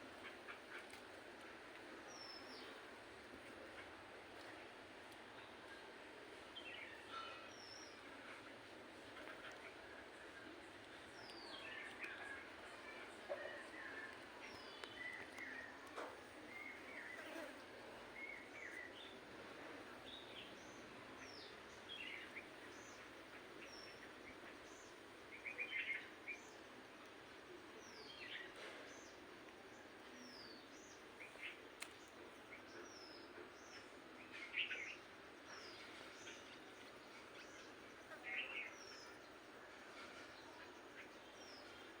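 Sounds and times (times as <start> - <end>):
faint steady hiss: 0.0 - 42.0
birds chirping: 6.6 - 26.6.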